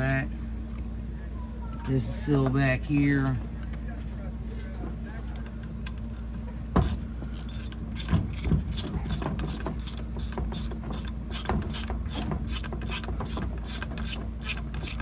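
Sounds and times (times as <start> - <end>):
steady low hum: 0.0 - 15.0
ratchet wrench clicking: 5.6 - 15.0.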